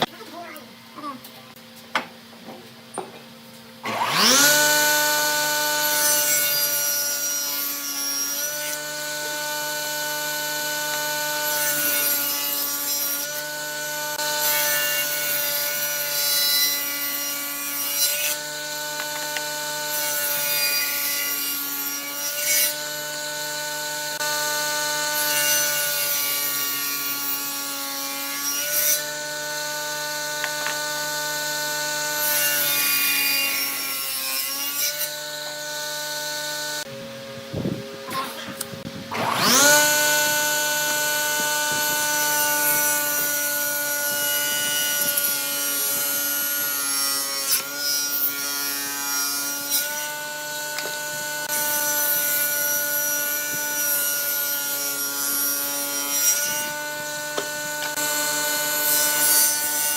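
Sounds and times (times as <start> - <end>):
power tool motor running: 3.7 - 59.9.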